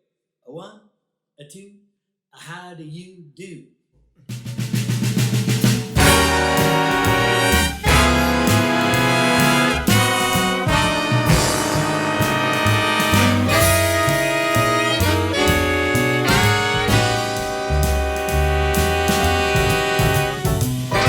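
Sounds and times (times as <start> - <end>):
big band jazz: 4.3 - 21.0.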